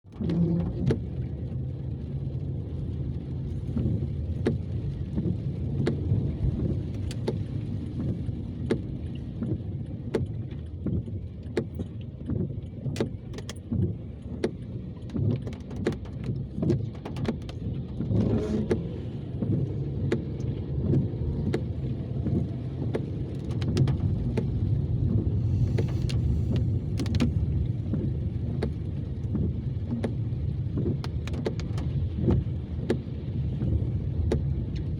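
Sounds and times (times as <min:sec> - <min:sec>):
car rumble: 0:00.0 - 0:34.9
sharp clicks and knocks: 0:06.7 - 0:24.6, 0:25.7 - 0:33.1, 0:34.2 - 0:34.9.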